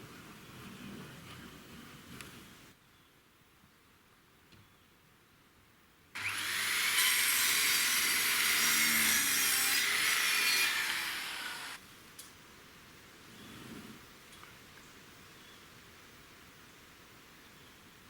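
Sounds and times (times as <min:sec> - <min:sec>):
saw cutting wood: 0:06.2 - 0:11.8.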